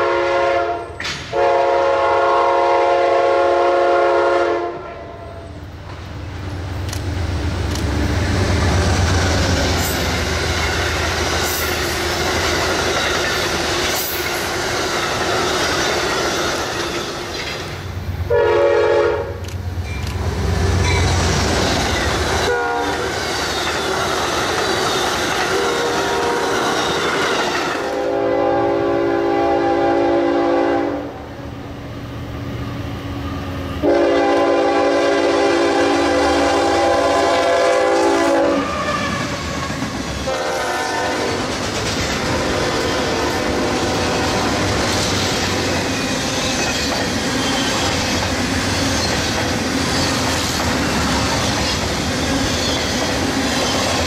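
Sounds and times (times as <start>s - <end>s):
locomotive multi-chime horn: 0.0s - 5.6s, 18.3s - 20.0s, 22.5s - 23.1s, 25.5s - 31.0s, 33.8s - 41.4s
train horn blast: 0.0s - 5.6s, 18.3s - 19.4s, 22.4s - 23.2s, 25.4s - 31.2s, 33.8s - 41.5s, 42.2s - 44.8s
train wheels rumbling on rails: 0.0s - 54.0s.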